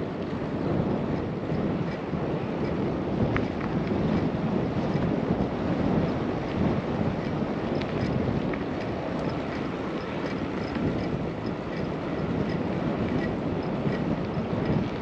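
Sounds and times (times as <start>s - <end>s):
wind rush over microphone: 0.0s - 15.0s
faint light ticks: 7.2s - 15.0s.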